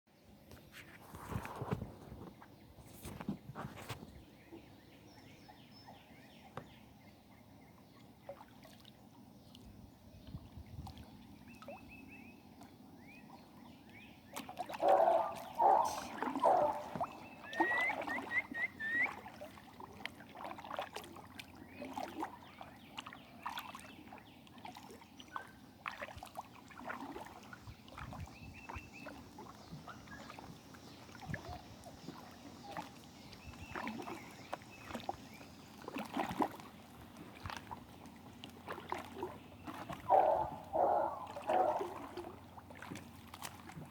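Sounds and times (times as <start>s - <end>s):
paddle water splashing: 10.6s - 43.9s.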